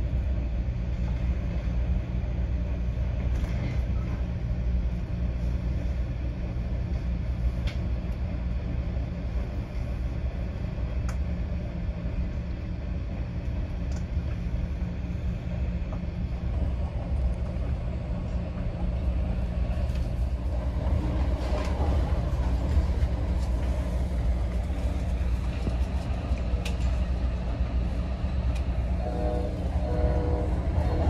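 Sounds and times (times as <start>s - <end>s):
train rumbling: 0.0s - 31.0s.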